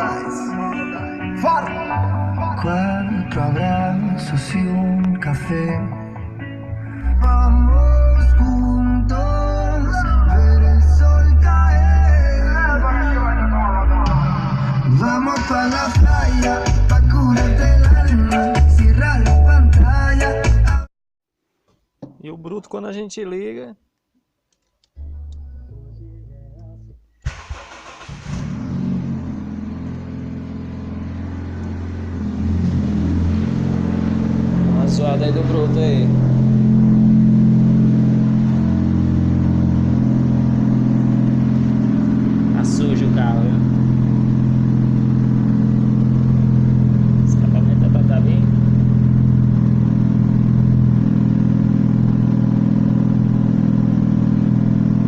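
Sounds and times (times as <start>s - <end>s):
bass-heavy music: 0.0s - 20.9s, 24.9s - 27.4s, 28.2s - 55.0s
car engine cranking and idling: 26.5s - 55.0s.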